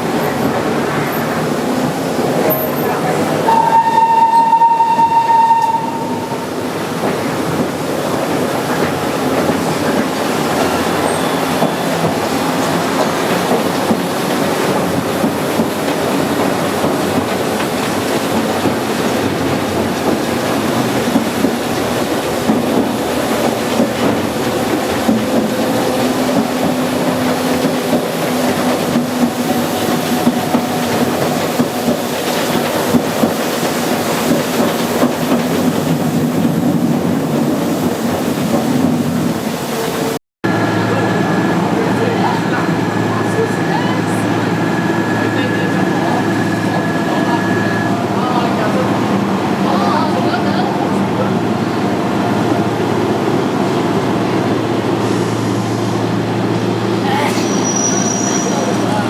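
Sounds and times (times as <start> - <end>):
train running noise: 0.0 - 59.0
train whistle: 3.5 - 6.6, 57.2 - 58.8
wheels clickety-clack: 6.7 - 40.1.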